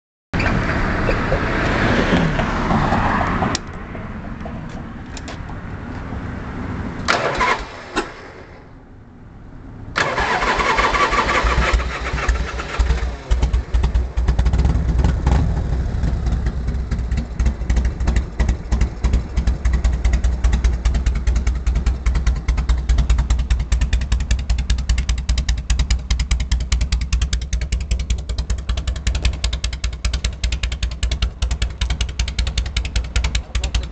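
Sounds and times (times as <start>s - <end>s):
loud motorcycle engine revving: 10.0s - 24.0s
motorcycle engine idling: 11.1s - 33.9s.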